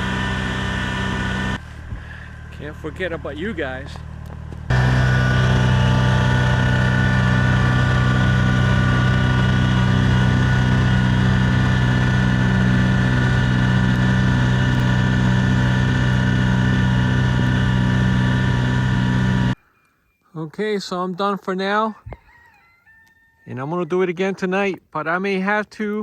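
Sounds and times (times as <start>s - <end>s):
diesel engine droning: 0.0s - 19.6s.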